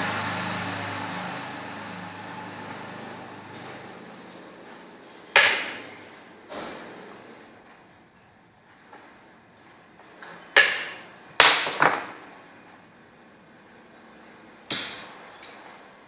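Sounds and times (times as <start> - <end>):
chess pieces knocking on board: 10.6 - 12.2.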